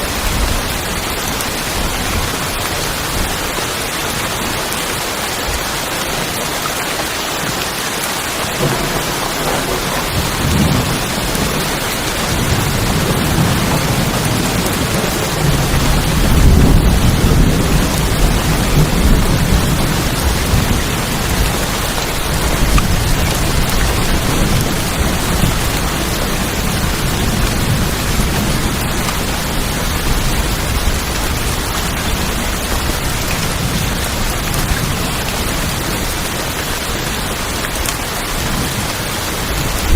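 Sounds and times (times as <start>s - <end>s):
rain drumming on tin roofs: 0.0s - 39.9s
low rumble of thunder: 8.6s - 36.1s.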